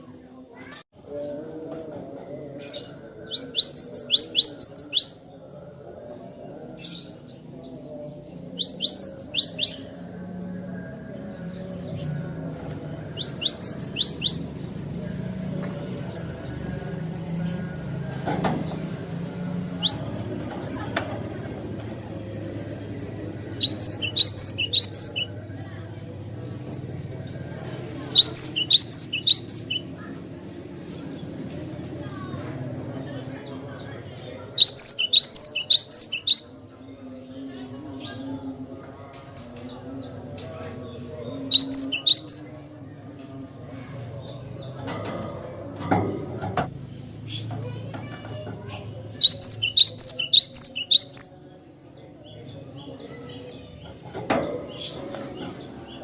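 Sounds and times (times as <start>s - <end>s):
sharp high bird chirps: 3.3s - 5.2s, 8.6s - 9.8s, 13.2s - 14.4s, 19.8s - 20.0s, 23.6s - 25.3s, 28.1s - 29.8s, 34.6s - 36.4s, 41.5s - 42.5s, 49.2s - 51.3s
tit chirping: 13.2s - 14.4s, 23.6s - 25.3s, 28.2s - 29.8s, 41.5s - 42.4s.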